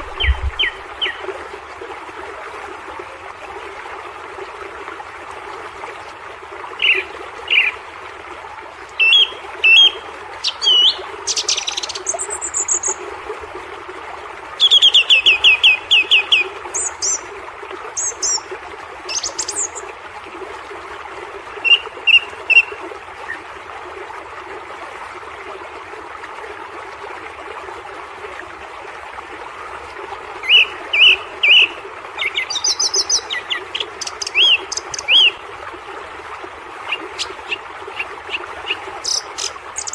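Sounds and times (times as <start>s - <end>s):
waterfall rushing: 0.0s - 1.2s
small birds chirping: 38.3s - 39.9s.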